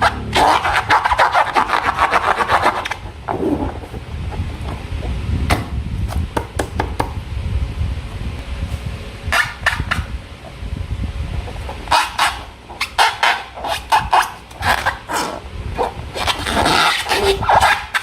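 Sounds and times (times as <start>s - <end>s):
balloon squeak: 0.0s - 4.0s, 11.9s - 18.0s.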